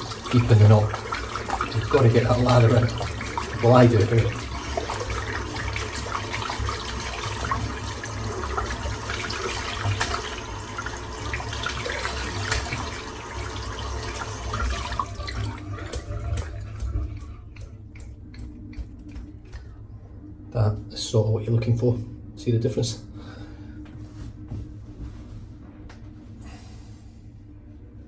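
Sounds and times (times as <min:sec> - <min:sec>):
tap water running: 0:00.0 - 0:19.8
water dripping: 0:00.0 - 0:19.8.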